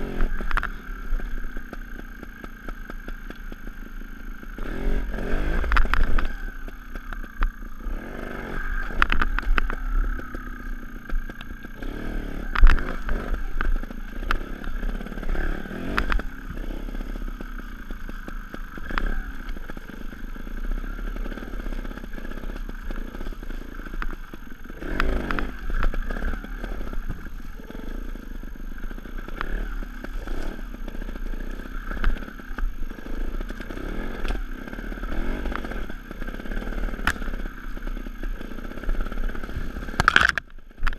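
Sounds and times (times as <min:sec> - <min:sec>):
motorcycle engine throttle blips: 0:00.0 - 0:40.9
sharp knocks and clatter: 0:40.0 - 0:40.9.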